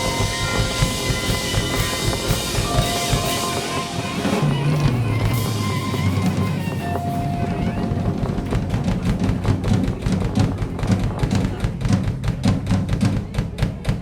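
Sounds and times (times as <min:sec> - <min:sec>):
saxophone: 0:00.0 - 0:10.9
low bass line: 0:00.0 - 0:12.1
piano: 0:00.0 - 0:12.4
drum kit: 0:00.0 - 0:14.0.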